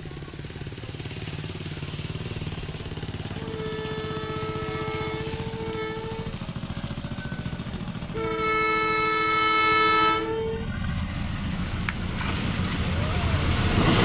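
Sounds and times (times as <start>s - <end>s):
low rhythmic train rumble: 0.0s - 14.0s
train horn blasts: 3.3s - 6.4s, 8.1s - 10.8s.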